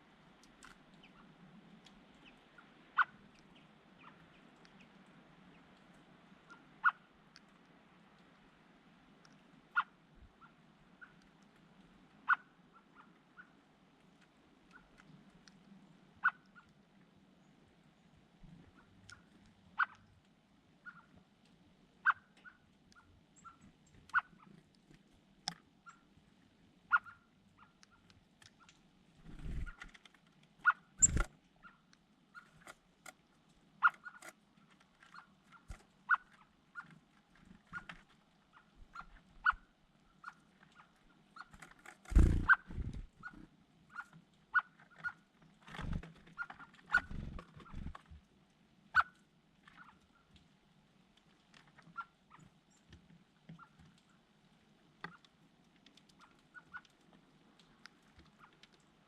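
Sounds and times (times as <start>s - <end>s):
low steady background hum: 0.0s - 59.0s
small birds chirping: 0.3s - 7.1s, 20.8s - 21.2s, 22.0s - 24.9s, 25.8s - 30.0s, 30.6s - 32.7s, 35.0s - 48.0s.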